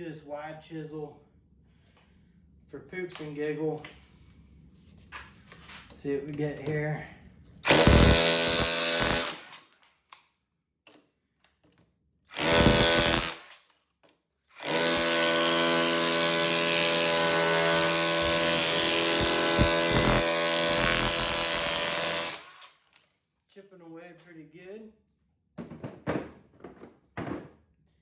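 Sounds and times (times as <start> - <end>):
hammer drill chiselling brick: 7.7 - 9.7, 12.4 - 13.7, 14.6 - 22.9.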